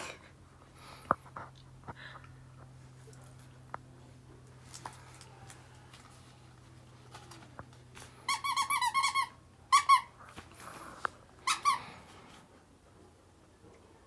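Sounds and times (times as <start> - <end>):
rubber squeaky toy squeaks: 8.3 - 10.2, 11.4 - 11.8.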